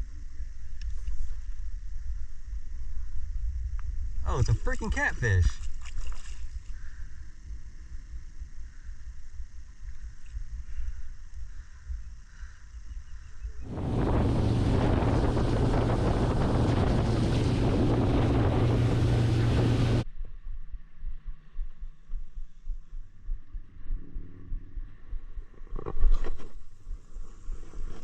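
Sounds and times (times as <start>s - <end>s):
wind on microphone: 6.8s - 20.9s
outboard motor running: 13.7s - 20.0s.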